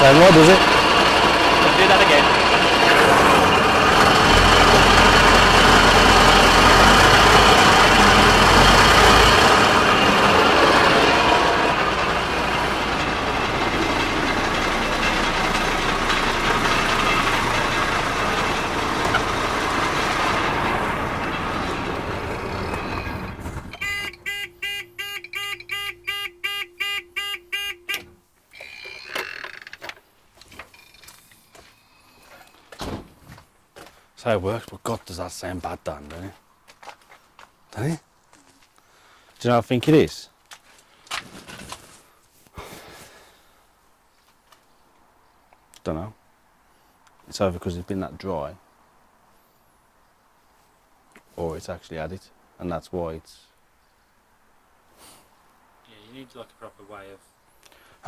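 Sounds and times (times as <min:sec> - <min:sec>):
fire pump running harshly: 0:00.0 - 0:25.8.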